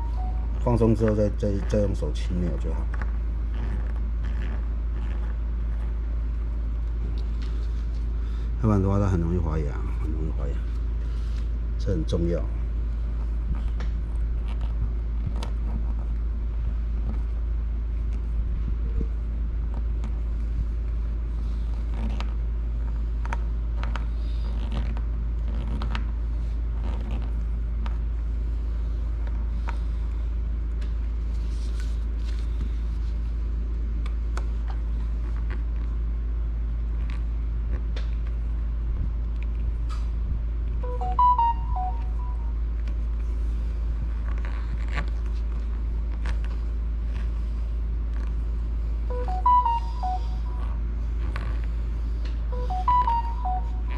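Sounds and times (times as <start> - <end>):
brief electronic tone: 0.0 - 0.7, 40.8 - 42.6, 49.1 - 50.8, 52.5 - 53.9
steady low hum: 0.0 - 53.9.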